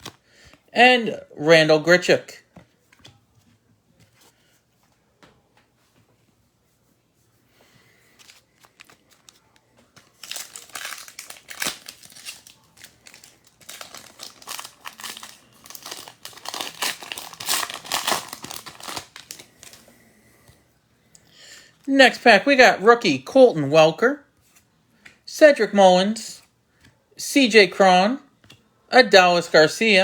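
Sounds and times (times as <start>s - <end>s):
card pack wrapper tearing and crinkling: 8.2s - 19.8s.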